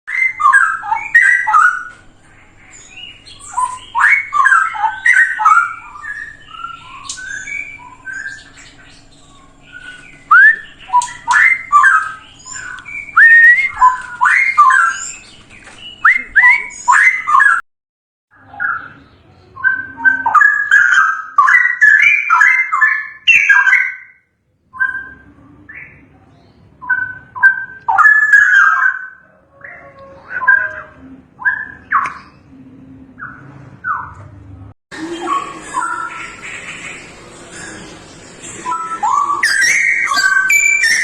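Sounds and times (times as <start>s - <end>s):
bird singing bubbling whistles: 0.1s - 1.9s, 2.7s - 17.6s, 38.6s - 41.0s.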